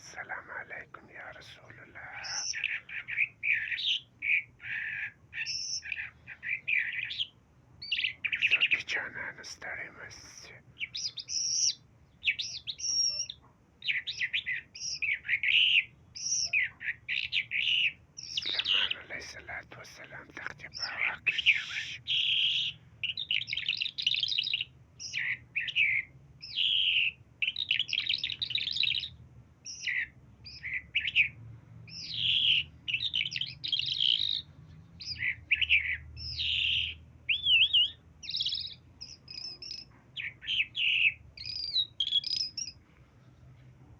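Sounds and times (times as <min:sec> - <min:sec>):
pet bird chirps and whistles: 0:10.9 - 0:16.7, 0:35.0 - 0:42.8.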